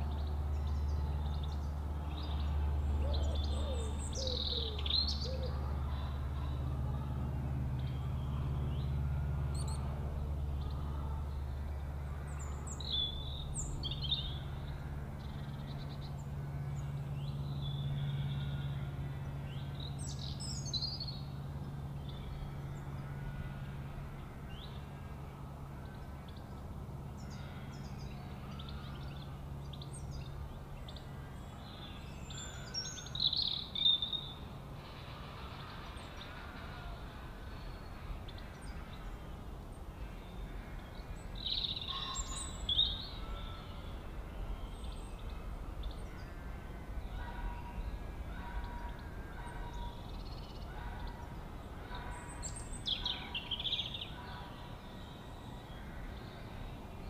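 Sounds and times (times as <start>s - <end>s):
low background rumble: 0.0s - 57.0s
birds chirping: 25.8s - 57.0s.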